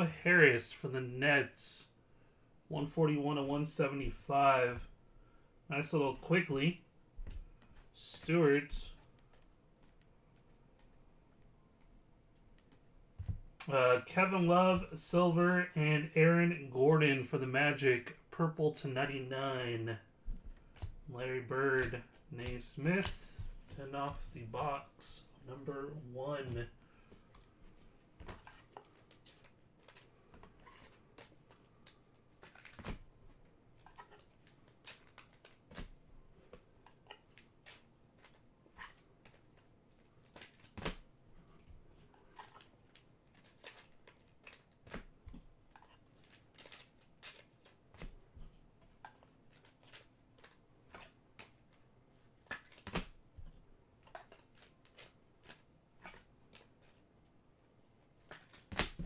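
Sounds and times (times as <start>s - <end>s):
trading cards being handled: 19.0s - 41.0s, 41.6s - 53.2s.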